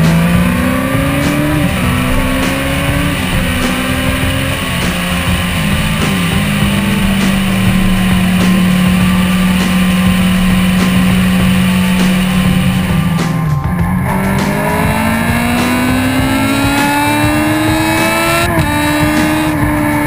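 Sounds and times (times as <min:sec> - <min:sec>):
motorcycle engine at high revs: 0:00.0 - 0:20.0
song with slow beat: 0:00.0 - 0:20.0.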